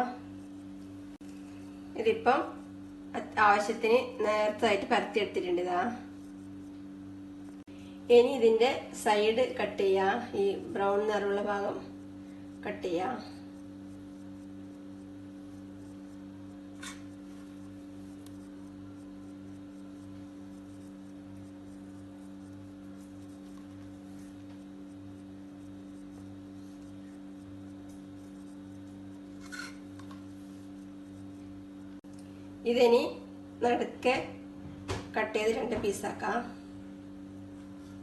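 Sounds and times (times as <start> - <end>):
low electrical hum: 0.0 - 38.0
knife scraping bread crust: 20.0 - 31.2.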